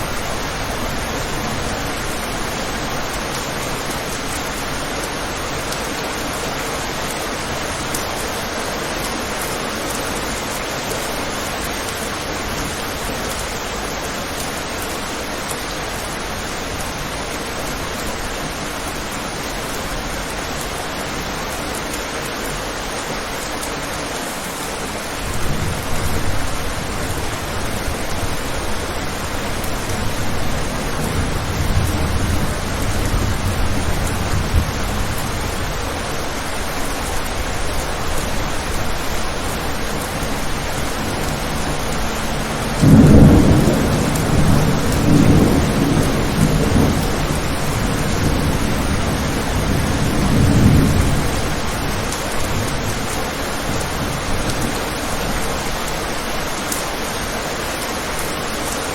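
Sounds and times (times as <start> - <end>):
rain on a window: 0.0 - 58.9
thunder clap: 25.2 - 35.8, 37.1 - 54.8
distant thunder rumbling: 25.2 - 55.4.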